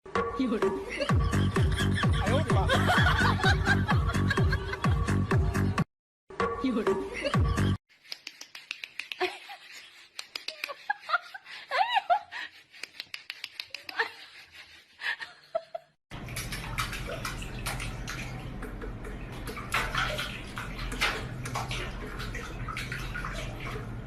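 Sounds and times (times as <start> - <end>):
running water: 16.1 - 24.0.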